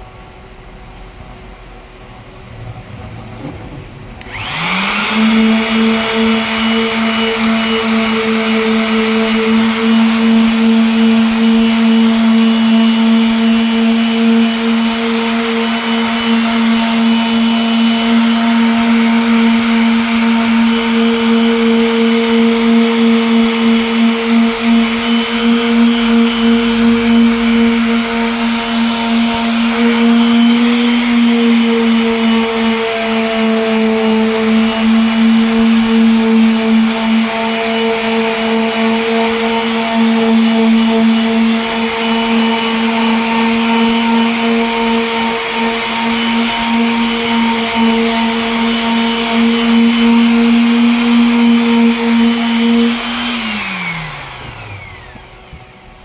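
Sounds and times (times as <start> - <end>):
electric sander whining: 4.2 - 56.0.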